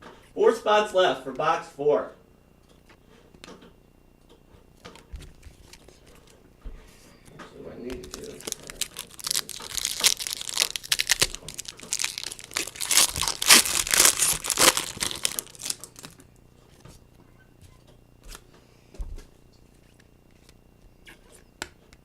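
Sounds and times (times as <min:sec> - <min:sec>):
foil wrappers crinkling and tearing: 0:07.9 - 0:16.3.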